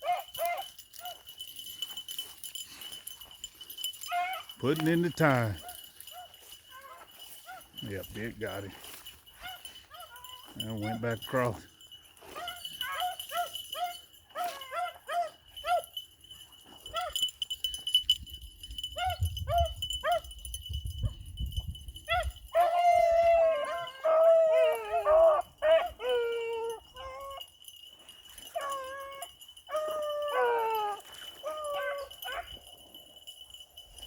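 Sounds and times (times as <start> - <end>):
dogs barking: 0.0 - 1.2, 4.0 - 7.8, 9.4 - 11.2, 12.2 - 16.0, 16.8 - 17.3, 22.1 - 26.5.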